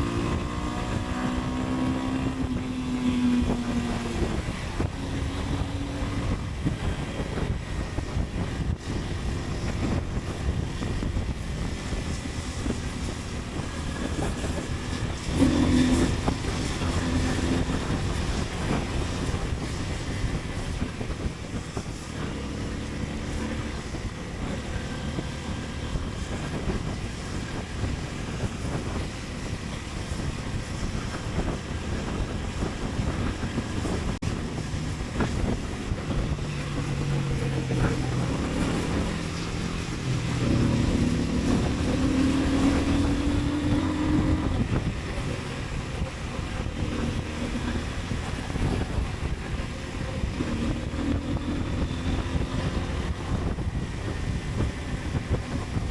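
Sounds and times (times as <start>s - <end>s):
motorcycle engine running: 0.0s - 55.9s
wind rushing over microphone: 0.0s - 55.9s.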